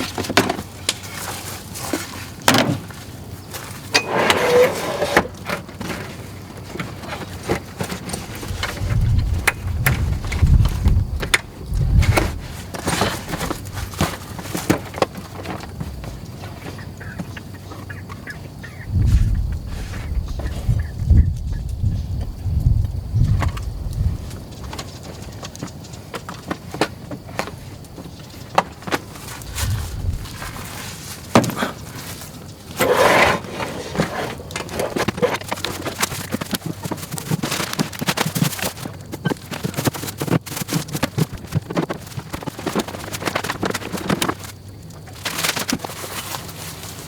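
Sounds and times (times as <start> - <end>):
clicks knocks and scrapes: 32.7 - 44.4.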